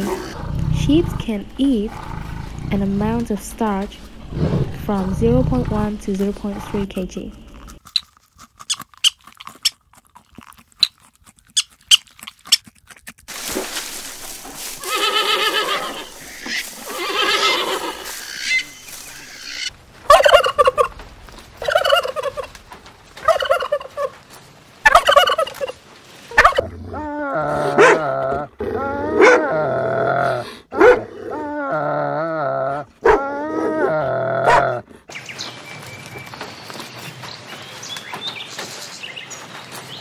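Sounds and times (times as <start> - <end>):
guineafowl cackling: 14.9 - 21.0, 21.6 - 22.6, 23.2 - 24.2, 24.8 - 25.8, 26.4 - 26.6.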